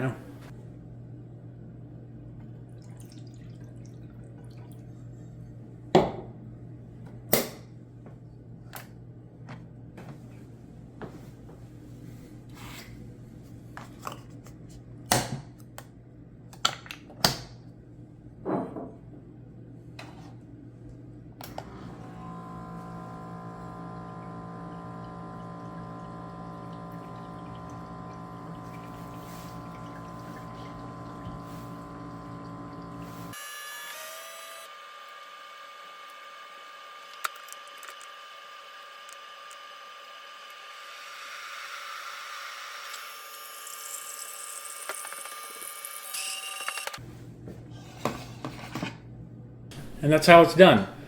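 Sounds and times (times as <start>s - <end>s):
pump humming: 21.5s - 33.4s
coffee streaming into cup: 21.6s - 33.4s.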